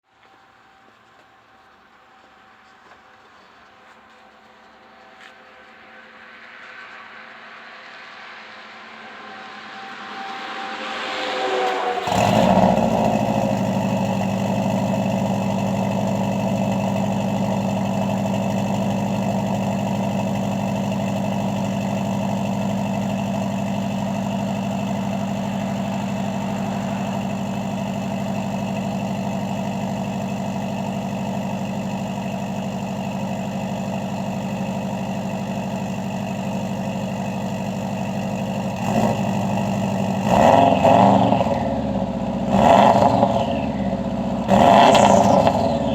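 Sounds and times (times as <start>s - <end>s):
engine revving: 8.1s - 33.3s, 34.0s - 45.9s
car engine idling: 11.9s - 45.9s.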